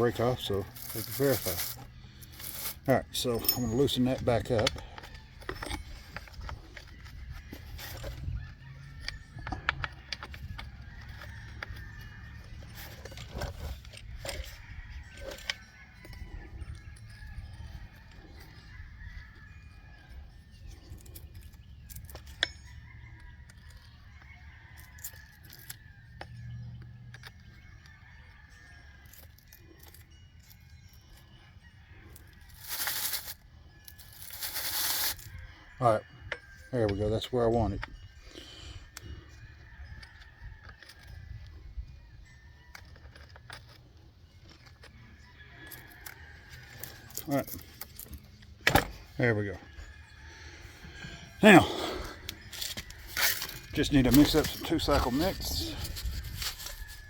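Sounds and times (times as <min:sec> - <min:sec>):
chickens calling: 0:48.7 - 0:57.0.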